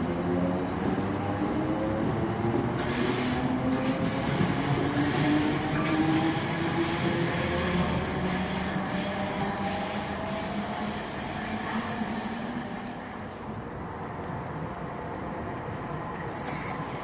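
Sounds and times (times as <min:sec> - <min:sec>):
train wheels squealing: 0:02.8 - 0:13.4.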